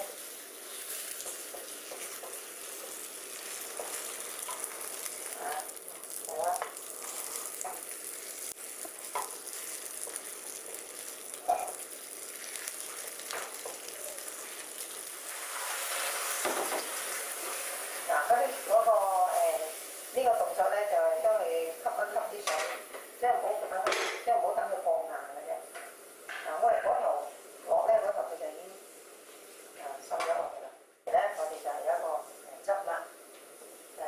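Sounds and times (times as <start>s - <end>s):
wooden spatulas turning food: 0.0s - 19.8s
tofu skin sizzling in wok: 0.0s - 23.6s.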